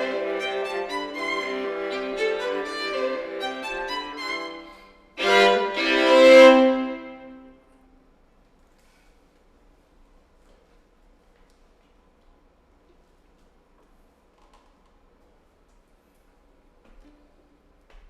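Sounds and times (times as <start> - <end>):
violin and viola duo: 0.0 - 7.5.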